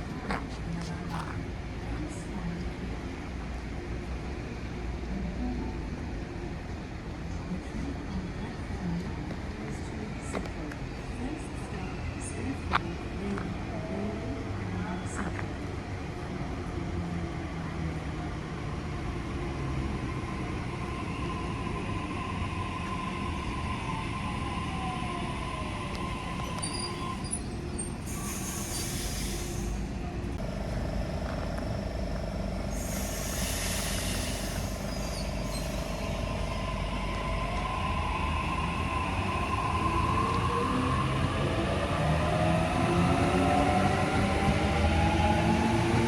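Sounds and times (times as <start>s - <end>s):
rising train whine: 19.2s - 46.0s
train motor hum: 26.0s - 44.1s
air hissing from brakes: 26.4s - 40.4s.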